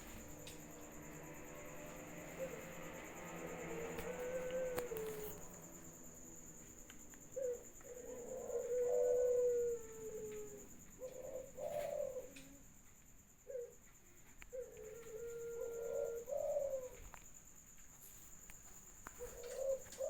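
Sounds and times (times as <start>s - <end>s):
dove cooing: 0.0s - 6.6s, 7.2s - 12.8s, 13.4s - 13.8s, 14.5s - 17.2s, 19.1s - 20.0s
faint high whine: 0.0s - 12.8s.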